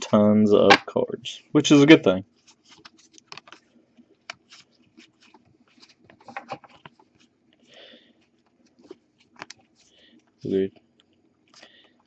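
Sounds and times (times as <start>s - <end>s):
cards clicking and slapping: 2.5s - 7.3s, 8.5s - 9.8s.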